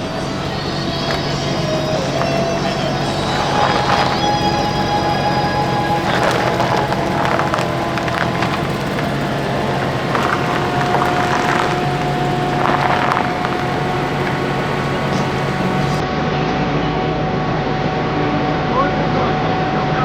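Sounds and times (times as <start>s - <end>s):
faint voices: 0.0s - 16.0s
vehicle engine running: 0.0s - 16.0s.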